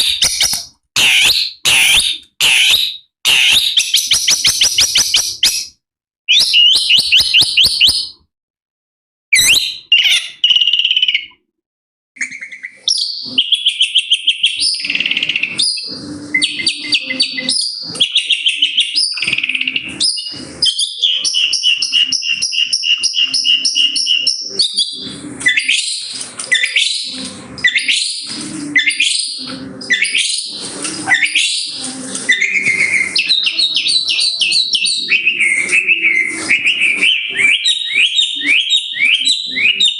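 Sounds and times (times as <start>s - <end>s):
shrike singing: 14.4s - 39.9s.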